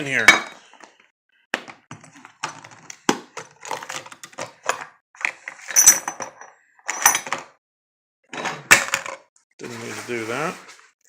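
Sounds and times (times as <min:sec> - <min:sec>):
metal parts clattering and clinking: 0:05.6 - 0:07.5.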